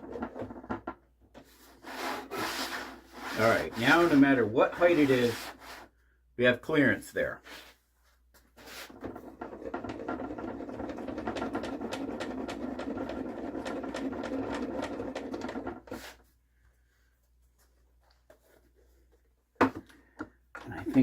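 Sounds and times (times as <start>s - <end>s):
handwheel cranking rattling whir: 9.9s - 15.6s.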